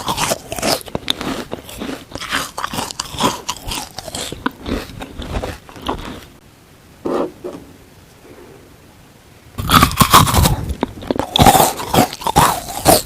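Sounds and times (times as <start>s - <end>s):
crunching frozen food: 0.0s - 6.4s, 9.6s - 13.0s.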